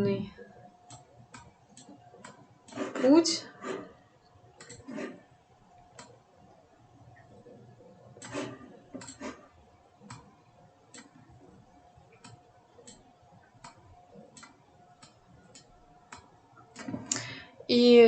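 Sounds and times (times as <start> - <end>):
computer mouse clicking: 0.9 - 3.0, 4.6 - 5.2, 5.9 - 6.2, 8.2 - 9.4, 10.0 - 17.3.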